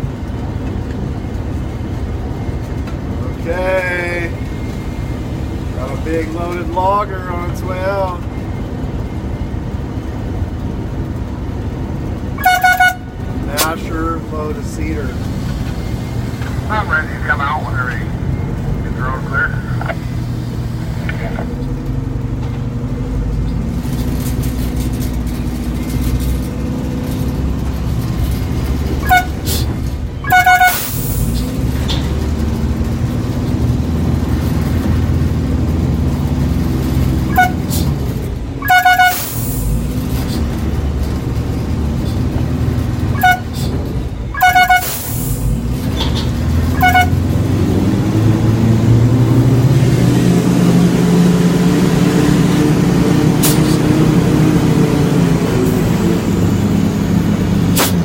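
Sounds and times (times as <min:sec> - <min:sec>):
heavy vehicle engine running: 0:00.0 - 0:58.0
horn toots: 0:12.4 - 0:13.8, 0:28.9 - 0:31.4, 0:37.1 - 0:38.0, 0:38.6 - 0:40.4, 0:43.1 - 0:45.6, 0:46.6 - 0:47.4.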